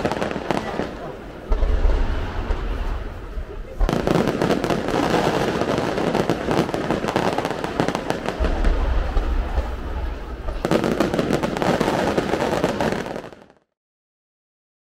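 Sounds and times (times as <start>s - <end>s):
firework shells bursting crackling: 0.0s - 13.6s
deep low boom: 1.5s - 4.0s, 8.4s - 10.7s.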